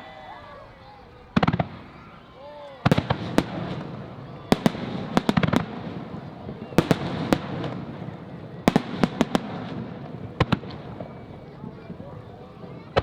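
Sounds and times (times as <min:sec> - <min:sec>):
background noise: 0:00.0 - 0:13.0
firework shells bursting: 0:02.8 - 0:13.0.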